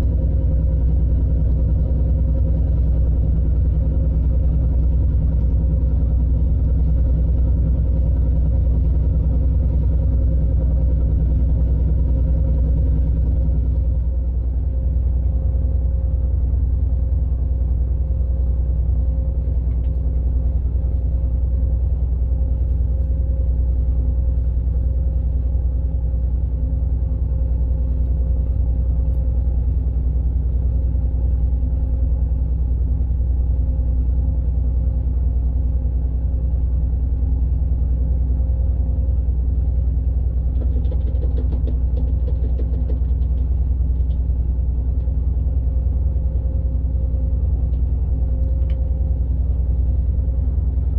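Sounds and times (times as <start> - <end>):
diesel engine rumbling: 0.0 - 50.9.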